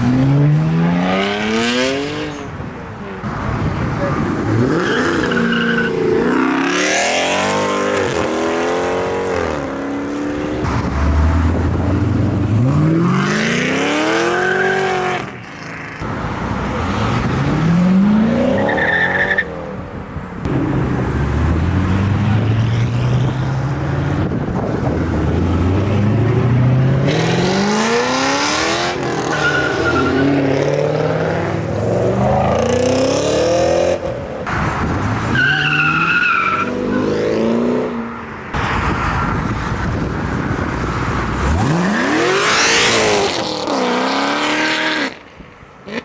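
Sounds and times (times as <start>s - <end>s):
car engines revving accelerating: 0.0s - 45.2s
tire squeal: 4.7s - 6.3s, 18.5s - 19.5s, 29.2s - 30.5s, 35.2s - 37.2s.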